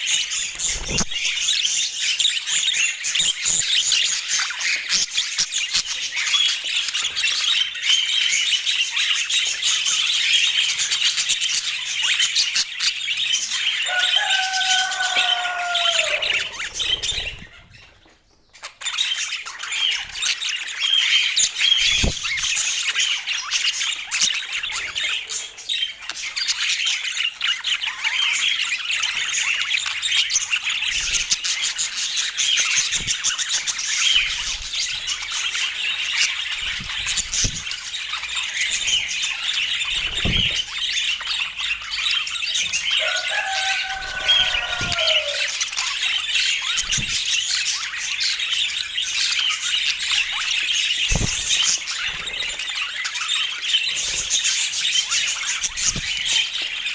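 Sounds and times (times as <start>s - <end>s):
budgerigars chattering and warbling: 0.0s - 56.9s
lower falling bird call: 13.9s - 17.6s, 43.0s - 45.6s.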